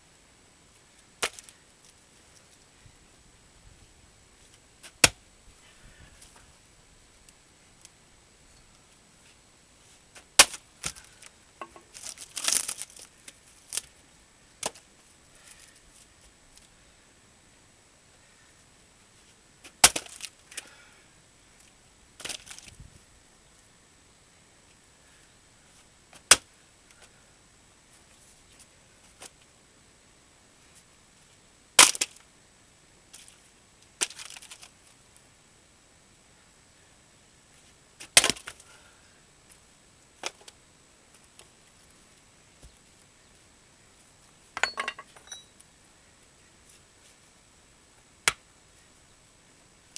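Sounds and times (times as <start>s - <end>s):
axe chopping firewood: 10.4s - 11.0s, 44.6s - 45.4s
wood fibres tearing: 11.9s - 13.1s
wood knocks clattering: 44.6s - 45.5s.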